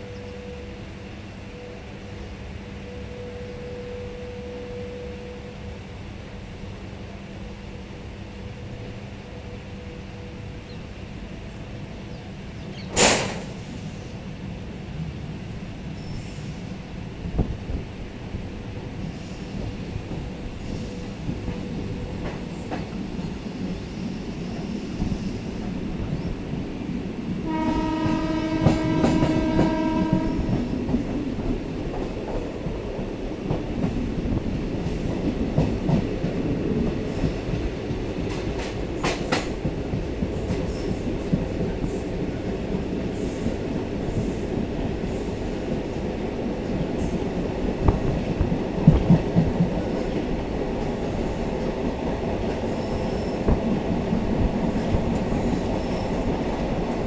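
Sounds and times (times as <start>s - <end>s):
train rumbling on track: 0.0s - 57.0s
locomotive horn: 27.4s - 30.7s.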